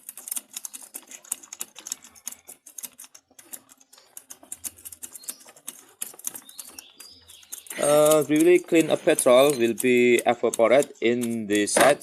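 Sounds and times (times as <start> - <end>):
small parts clicking and tapping: 0.0 - 12.0
faint bird chirps: 4.9 - 9.7.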